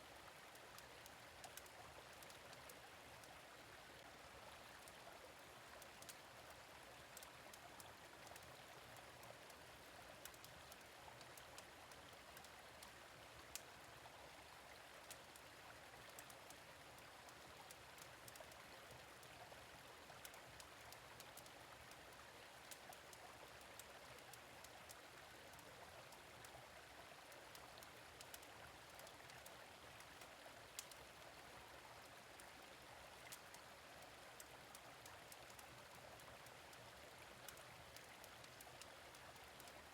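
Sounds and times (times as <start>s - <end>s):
stream running: 0.0s - 39.9s
wood fire crackles: 30.1s - 31.0s.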